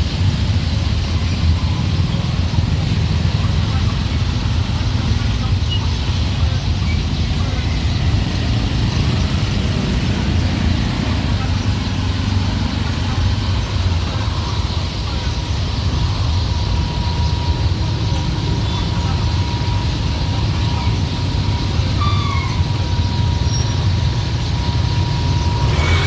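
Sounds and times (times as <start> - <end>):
traffic engine rumble: 0.0 - 26.0
brief squeal: 22.0 - 22.7.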